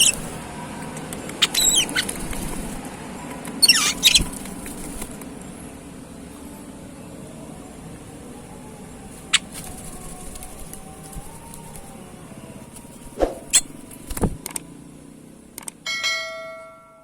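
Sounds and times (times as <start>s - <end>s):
bird chirping: 0.0s - 4.9s, 9.1s - 14.0s.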